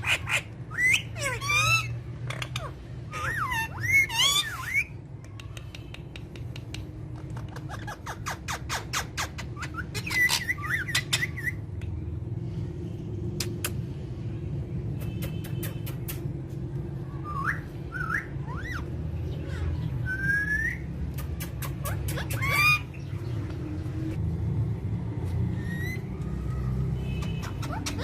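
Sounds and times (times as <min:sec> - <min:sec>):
parrot squawking: 0:00.0 - 0:05.0, 0:07.2 - 0:11.6, 0:17.2 - 0:23.2, 0:27.2 - 0:28.0
parrot clicking: 0:05.2 - 0:07.4.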